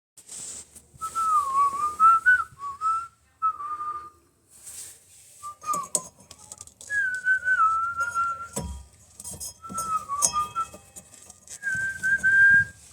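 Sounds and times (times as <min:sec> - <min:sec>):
person whistling: 0:01.0 - 0:04.1, 0:06.9 - 0:08.6, 0:09.6 - 0:10.8, 0:11.6 - 0:12.8.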